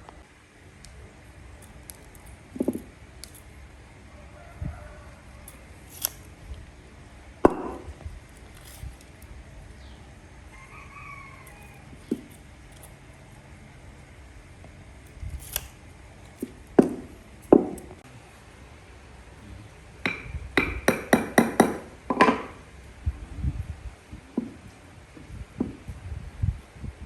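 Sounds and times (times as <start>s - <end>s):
wood and tools clattering: 1.6s - 3.5s, 15.1s - 18.0s, 20.1s - 22.6s
rooster crowing: 4.0s - 5.8s, 10.4s - 12.2s.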